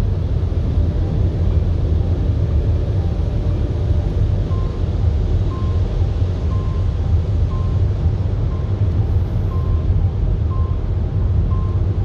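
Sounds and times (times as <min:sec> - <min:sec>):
car engine rumble: 0:00.0 - 0:12.0
road noise inside car: 0:00.0 - 0:12.0.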